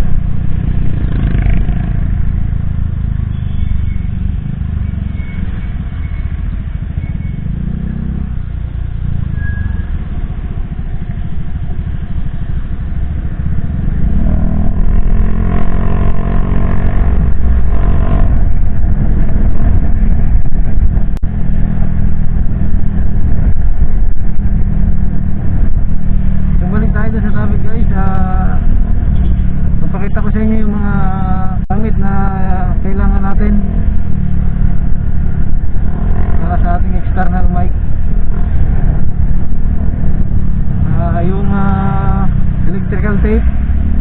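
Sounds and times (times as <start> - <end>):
road noise: 0.0 - 44.0
wind noise: 0.0 - 44.0
motorcycle engine running: 10.3 - 44.0.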